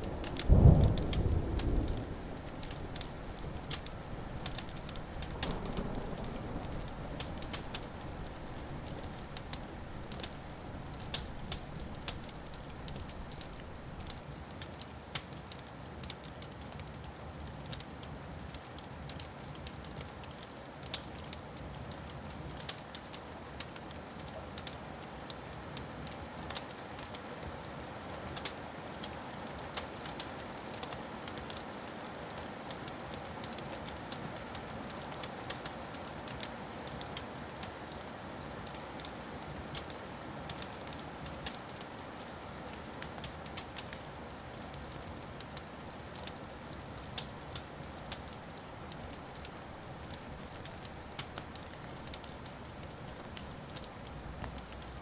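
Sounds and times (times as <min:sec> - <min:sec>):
distant thunder rumble: 0:00.0 - 0:14.1
wood fire crackling and popping: 0:00.0 - 0:55.0.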